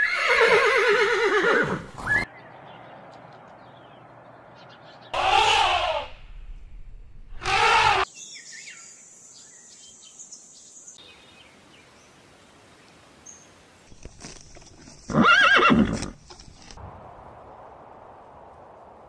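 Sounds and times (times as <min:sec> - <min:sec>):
horse whinnying: 0:00.0 - 0:02.2, 0:05.2 - 0:06.2, 0:07.4 - 0:08.1, 0:15.0 - 0:16.2.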